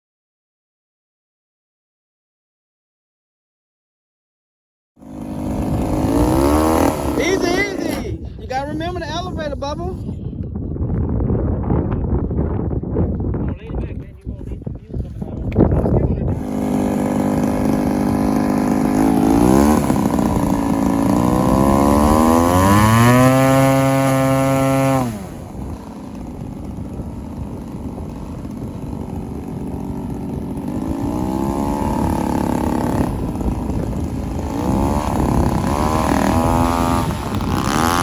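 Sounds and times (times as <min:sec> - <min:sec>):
model airplane motor whine: 0:05.0 - 0:09.5, 0:16.2 - 0:38.0.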